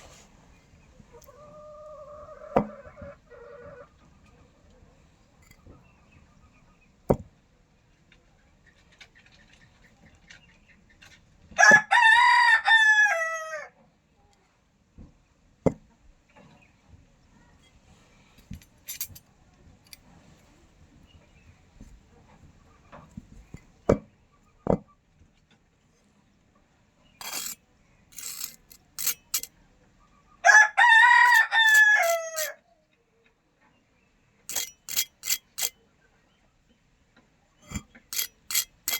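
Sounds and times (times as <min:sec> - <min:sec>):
rooster crowing: 0:11.6 - 0:13.7, 0:30.4 - 0:32.6.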